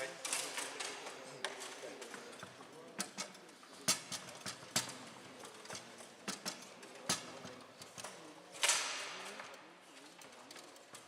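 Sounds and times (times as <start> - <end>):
foosball ball and rods clacking: 3.0 - 8.1.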